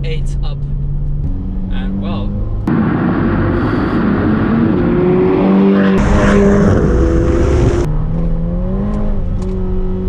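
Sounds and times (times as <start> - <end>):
car engine inside cabin: 0.0 - 10.0
sports car driving past: 2.6 - 8.2.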